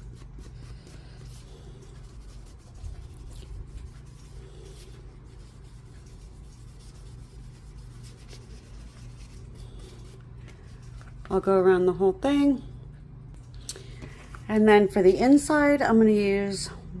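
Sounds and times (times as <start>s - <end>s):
brush scratching on paper: 0.0s - 11.2s
steady low hum: 0.0s - 17.0s.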